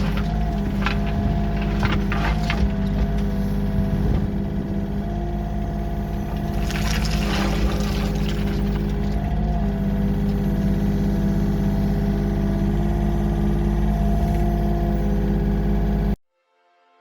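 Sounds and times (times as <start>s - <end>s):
rattling and clatter: 0.0s - 4.9s, 6.2s - 10.7s
heavy diesel engine running: 0.0s - 16.2s.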